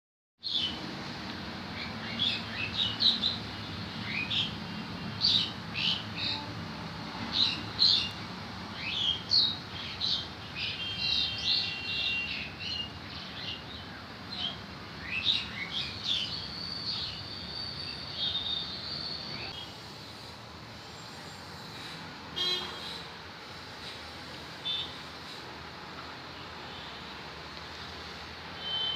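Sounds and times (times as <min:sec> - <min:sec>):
small birds chirping: 0:01.7 - 0:06.4, 0:08.8 - 0:20.3.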